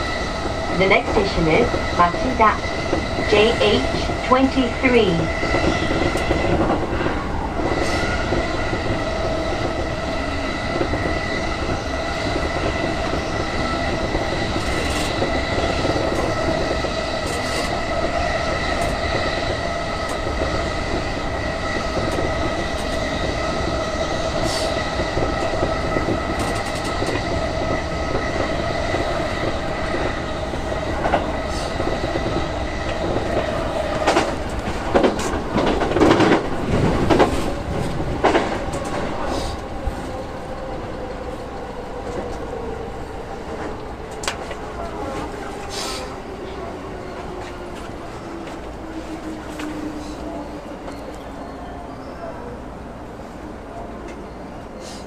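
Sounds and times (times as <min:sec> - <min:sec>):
train running rumble: 0:00.0 - 0:42.5.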